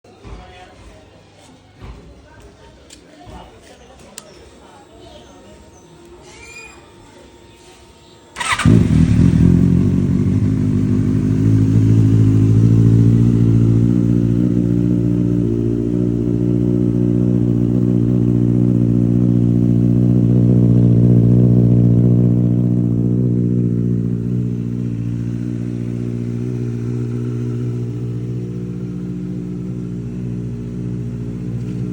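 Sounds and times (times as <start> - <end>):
motorcycle engine idling: 8.3 - 31.9
motorcycle engine cranking: 8.4 - 13.8.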